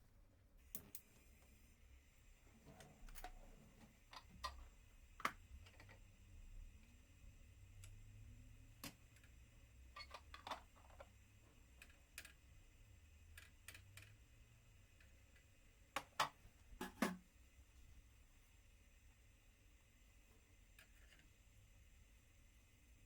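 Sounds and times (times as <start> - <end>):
small objects clicking and tapping: 3.1 - 6.0, 8.8 - 9.4, 10.0 - 12.5, 13.3 - 14.2.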